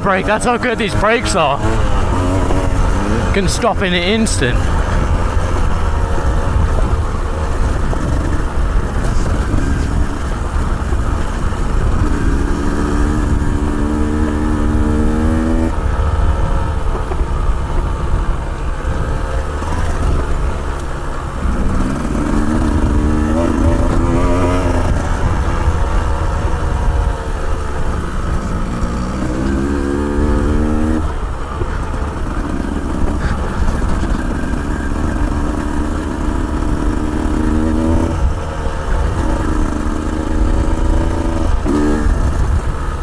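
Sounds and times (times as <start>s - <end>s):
motorcycle engine running: 0.0s - 43.0s
wind rumble on microphone: 37.9s - 43.0s.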